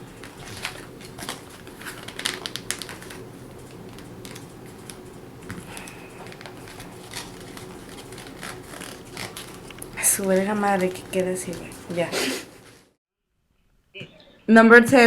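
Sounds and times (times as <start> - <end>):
paper being folded: 0.0 - 12.9.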